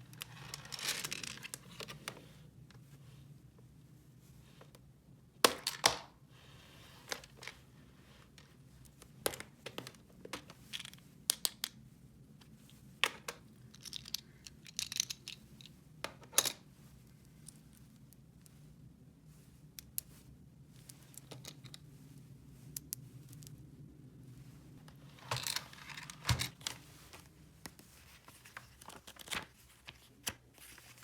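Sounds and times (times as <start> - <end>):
plastic toy pieces clicking: 13.7 - 15.4.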